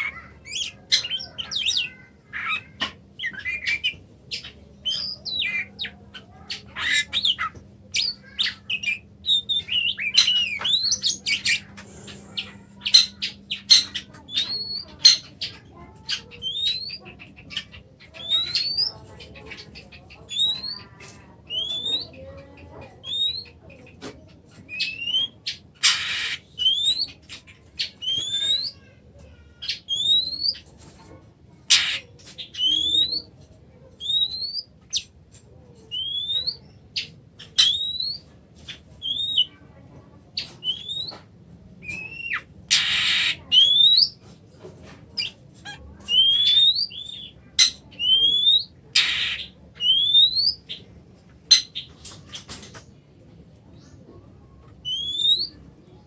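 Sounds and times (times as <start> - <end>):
bird harsh rasping call: 24.8 - 27.1, 42.0 - 44.2.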